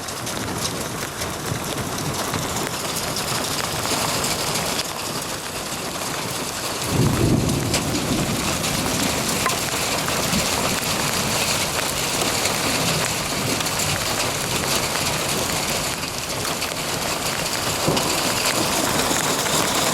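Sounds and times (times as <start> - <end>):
heavy rain pouring: 0.0 - 19.9
sharp ticks of rain impacts: 0.0 - 19.9.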